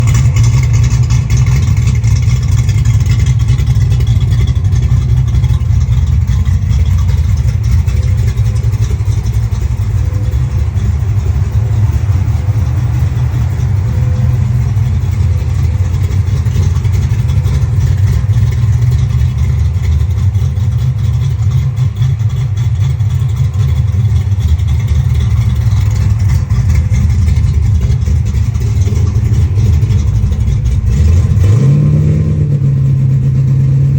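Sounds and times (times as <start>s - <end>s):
car engine running steadily: 0.0s - 33.9s.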